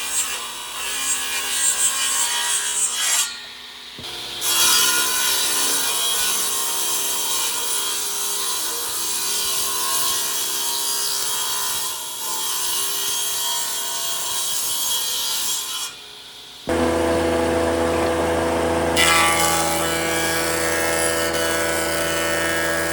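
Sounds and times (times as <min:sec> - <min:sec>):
machine humming: 0:16.7 - 0:22.9
tool abrading wood: 0:16.7 - 0:22.9.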